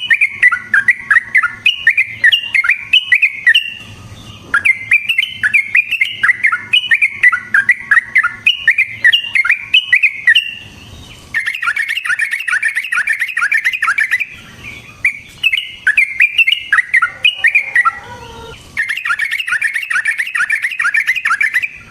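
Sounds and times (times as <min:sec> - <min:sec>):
bird bubbling chirps: 0:15.1 - 0:21.6.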